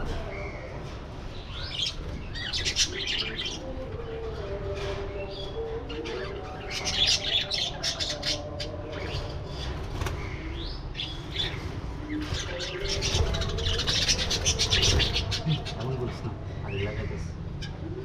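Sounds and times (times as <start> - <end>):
budgerigars chirping and chattering: 1.4 - 3.7, 5.2 - 17.9.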